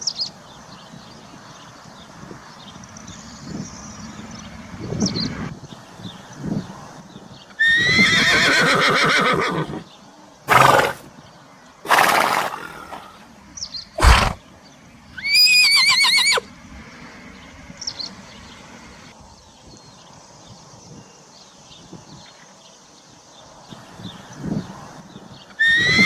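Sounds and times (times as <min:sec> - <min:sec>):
horse whinnying: 0:07.6 - 0:09.8, 0:10.5 - 0:11.1, 0:11.9 - 0:13.1, 0:14.0 - 0:14.4, 0:15.2 - 0:16.4, 0:25.6 - 0:26.0
horse blowing breathily: 0:10.5 - 0:11.1, 0:11.9 - 0:13.2, 0:14.0 - 0:14.4.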